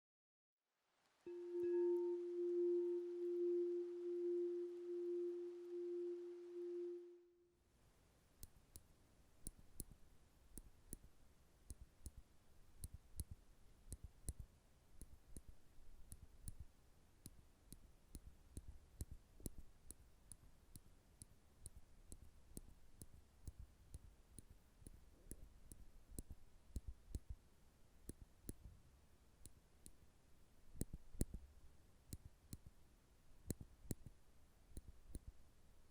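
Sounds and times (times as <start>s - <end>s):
gently pulsing tone: 1.3s - 7.4s.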